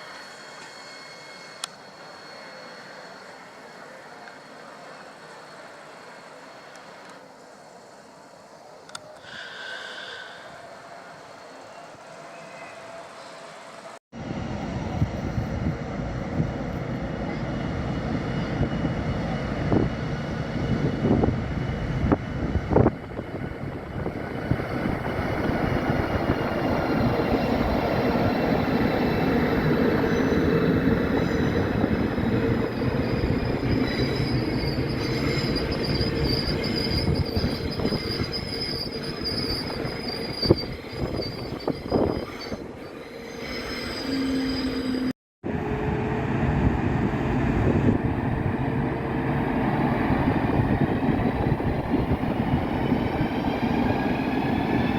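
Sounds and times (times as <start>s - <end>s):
wheel squeal: 0.0s - 3.6s, 26.1s - 45.1s
train wheels rumbling on rail: 11.0s - 54.9s.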